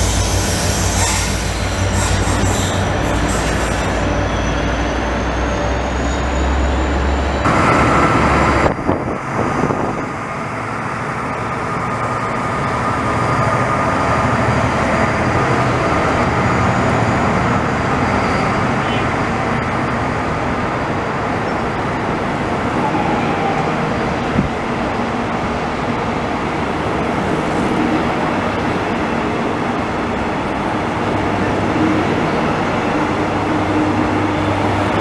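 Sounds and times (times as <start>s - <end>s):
thin wheel squeal: 0.0s - 4.5s
diesel locomotive engine rumble: 0.0s - 35.0s
train wheels rumbling on rails: 0.0s - 35.0s.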